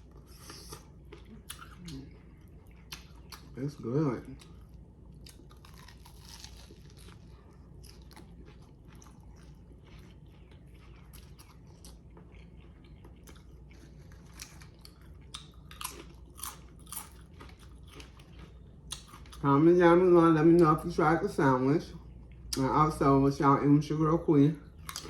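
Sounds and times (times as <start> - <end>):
crunchy food chewing: 0.0 - 19.4, 24.6 - 25.0.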